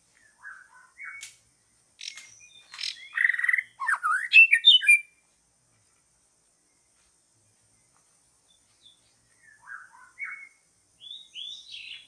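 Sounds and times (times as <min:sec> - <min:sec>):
songbird whistling and chirping: 0:00.1 - 0:01.4, 0:02.0 - 0:05.2, 0:07.8 - 0:12.0.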